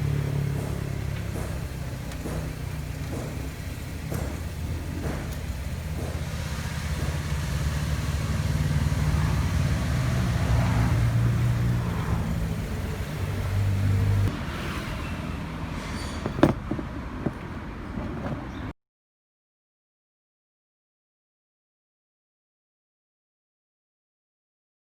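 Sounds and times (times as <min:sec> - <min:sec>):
car engine running: 0:00.0 - 0:14.4.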